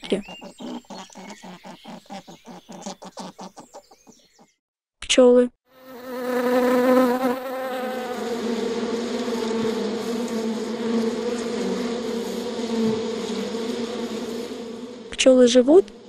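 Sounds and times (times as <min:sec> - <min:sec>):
bees buzzing: 0:05.7 - 0:16.0.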